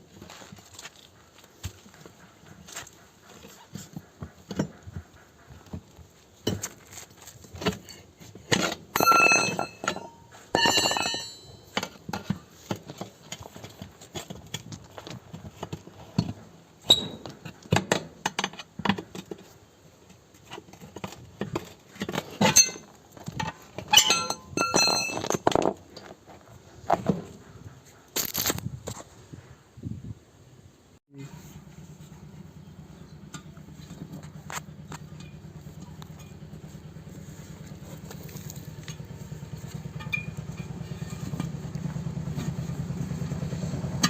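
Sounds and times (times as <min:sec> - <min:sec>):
ringing metal strikes: 0:09.0 - 0:11.9, 0:23.9 - 0:25.3
tools knocking on metal: 0:09.0 - 0:12.4.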